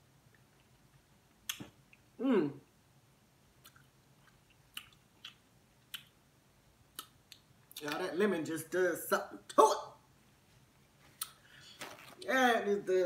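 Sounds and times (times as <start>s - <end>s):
chewing and mouth smacks: 0.3s - 2.1s, 3.6s - 6.2s.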